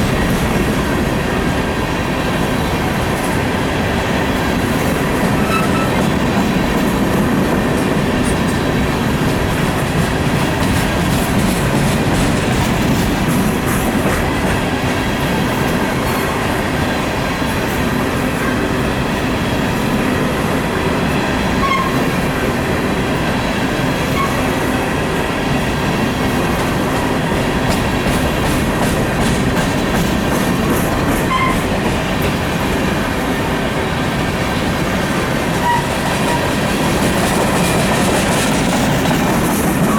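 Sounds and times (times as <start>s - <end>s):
train wheels rumbling on rail: 0.0s - 39.9s
faint wheel squeals: 5.4s - 6.0s.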